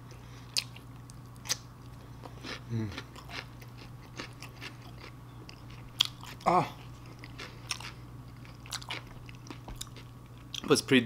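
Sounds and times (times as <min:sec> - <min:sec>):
person chewing: 0:00.1 - 0:10.7
person humming mm: 0:02.7 - 0:03.1.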